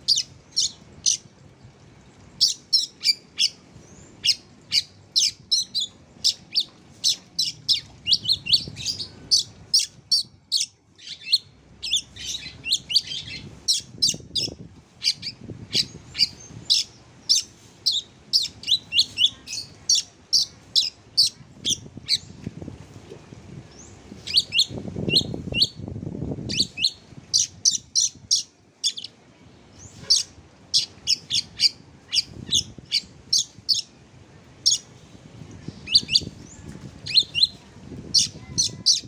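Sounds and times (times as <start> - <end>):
bird chirping rapidly: 4.2 - 22.3, 26.5 - 29.2, 29.8 - 33.9, 35.7 - 37.6.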